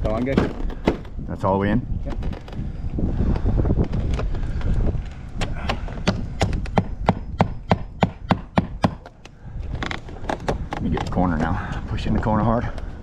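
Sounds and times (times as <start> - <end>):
hammer driving nails: 5.4 - 9.2.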